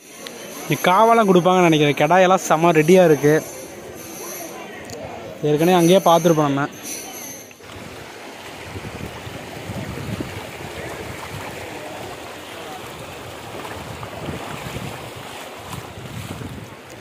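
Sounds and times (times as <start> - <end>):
river water running: 0.0 - 17.0
wind rumbling on microphone: 7.6 - 17.0.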